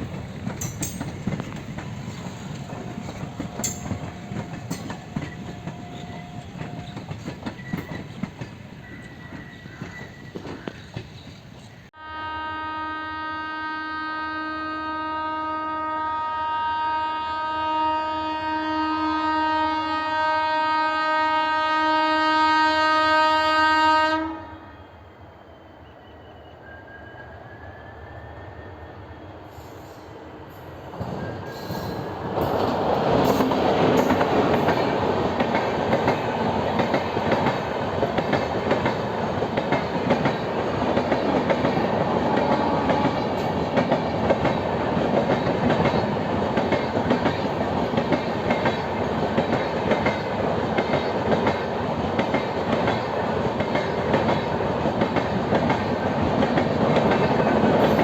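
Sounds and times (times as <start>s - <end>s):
train wheels clattering: 0.0s - 11.9s, 30.6s - 58.0s
train horn blast: 12.0s - 24.9s, 42.2s - 43.5s.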